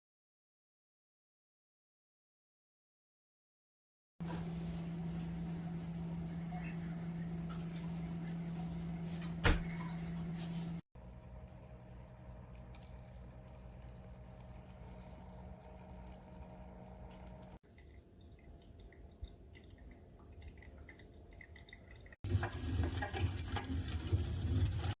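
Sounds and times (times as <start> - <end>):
steady low hum: 4.2 - 17.6
water dripping and trickling: 4.2 - 25.0.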